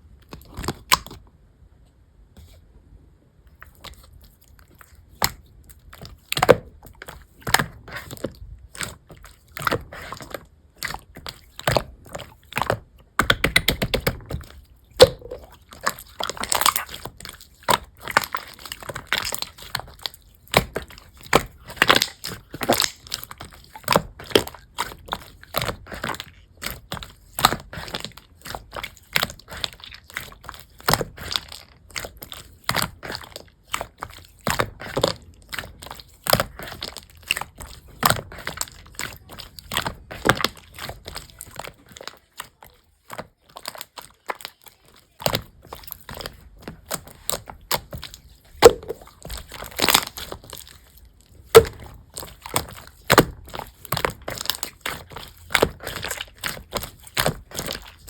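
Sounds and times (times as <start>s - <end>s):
slime clicking and popping: 12.7s - 58.0s.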